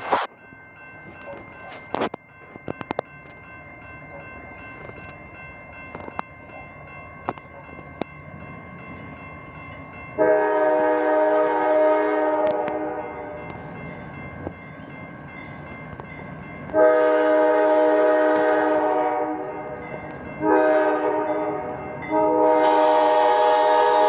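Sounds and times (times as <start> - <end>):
locomotive horn blasts: 10.2 - 13.4, 16.7 - 19.8, 20.4 - 24.0.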